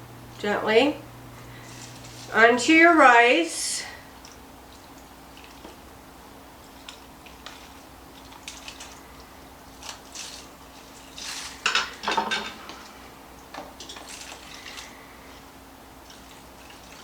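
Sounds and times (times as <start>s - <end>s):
liquid dripping: 3.9s - 9.6s.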